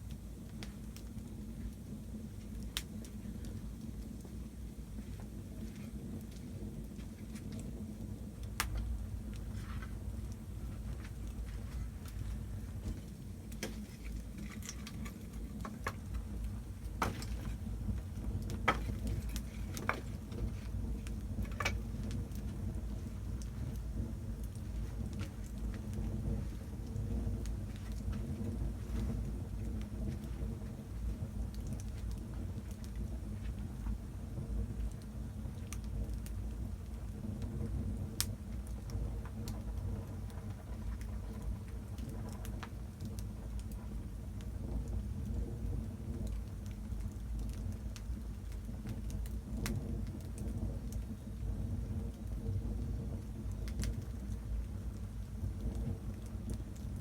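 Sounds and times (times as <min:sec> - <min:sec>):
low rumble of flame: 0:00.0 - 0:57.0
wood fire crackling: 0:00.0 - 0:57.0.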